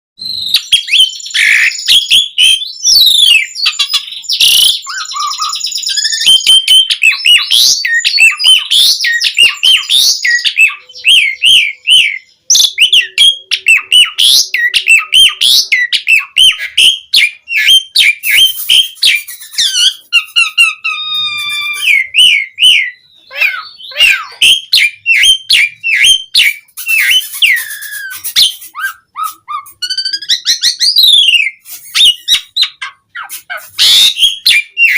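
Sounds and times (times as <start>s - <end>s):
starling singing varied song: 0.3s - 34.9s.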